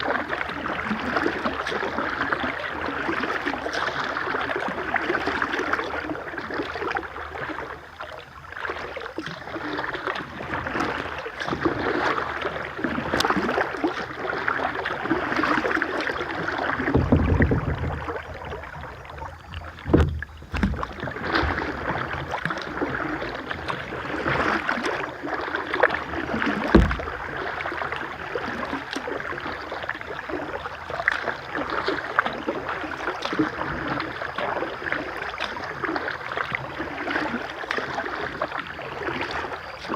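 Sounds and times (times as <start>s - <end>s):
river water rushing and splashing: 0.0s - 39.9s
deep thumps: 16.8s - 21.7s, 26.6s - 27.4s.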